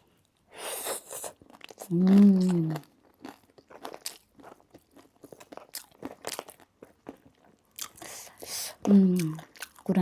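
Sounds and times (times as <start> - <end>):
person chewing crunchy snack: 0.6 - 9.9.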